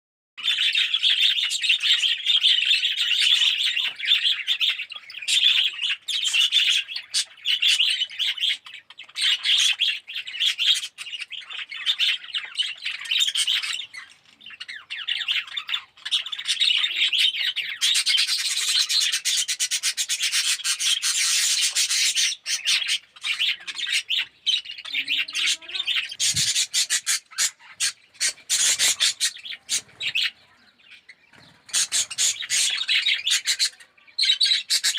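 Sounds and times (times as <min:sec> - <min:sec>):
budgerigars chattering and chirping: 0:00.4 - 0:34.9.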